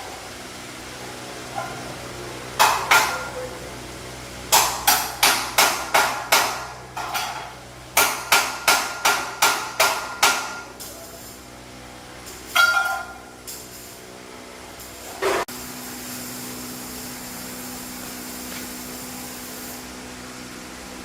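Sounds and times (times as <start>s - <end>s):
hammer striking steel: 4.5s - 7.4s, 8.0s - 10.7s, 12.5s - 13.2s.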